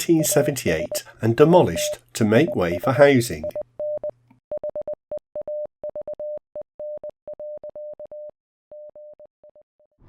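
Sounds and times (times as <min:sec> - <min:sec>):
morse code beeping: 0:00.0 - 0:04.1.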